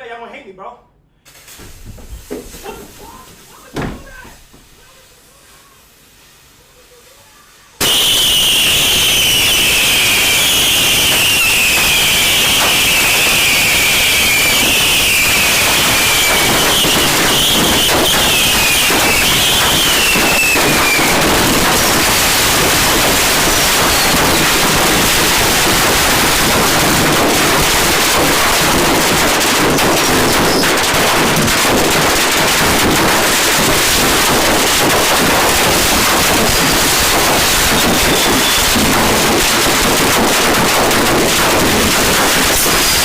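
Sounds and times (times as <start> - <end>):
firecrackers crackling and popping: 1.3 - 6.2, 7.8 - 43.0
faint firework whistles: 7.2 - 43.0.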